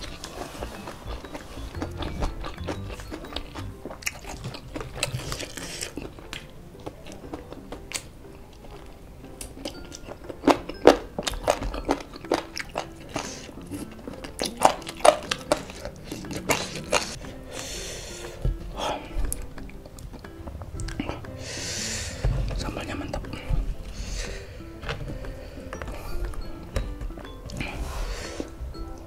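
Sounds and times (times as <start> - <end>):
chicken bone gnawed: 0.0 - 17.2
crunching fried chicken: 0.0 - 17.7.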